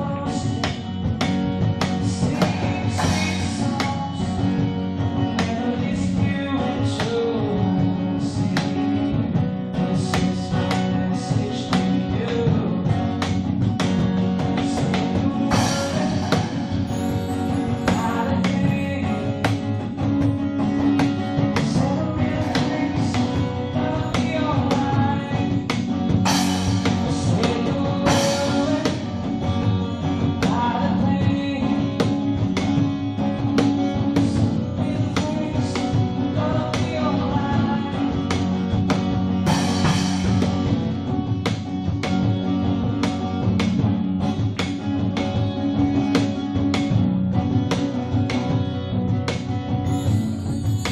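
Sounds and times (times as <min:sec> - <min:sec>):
band with guitar and drums: 0:00.0 - 0:50.9
drum strikes: 0:00.6 - 0:04.8, 0:11.8 - 0:23.6, 0:24.2 - 0:29.6, 0:38.2 - 0:42.4, 0:49.2 - 0:50.9.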